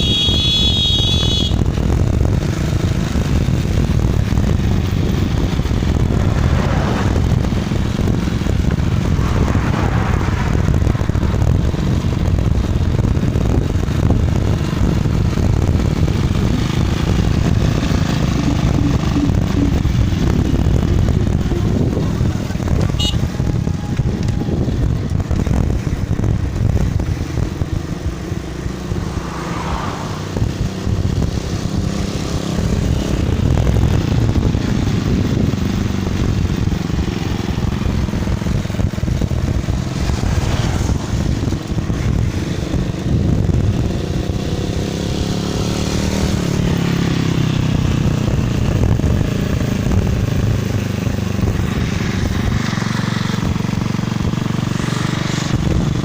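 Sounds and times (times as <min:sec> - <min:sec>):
wind rumble on microphone: 0:00.0 - 0:56.0
bicycle rolling noise: 0:34.2 - 0:45.4.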